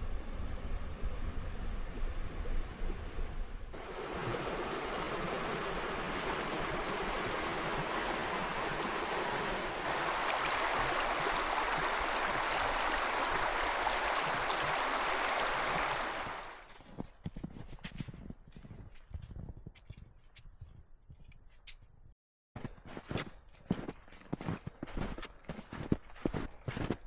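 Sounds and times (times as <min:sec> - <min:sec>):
water rushing over a dam: 0:03.8 - 0:16.6.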